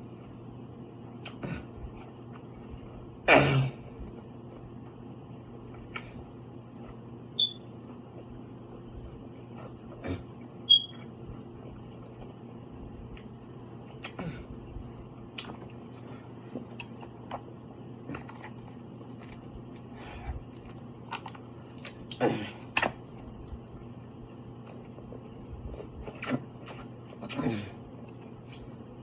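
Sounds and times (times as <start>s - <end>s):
steady low hum: 0.0s - 29.0s
chewing with wet crunches: 7.8s - 29.0s.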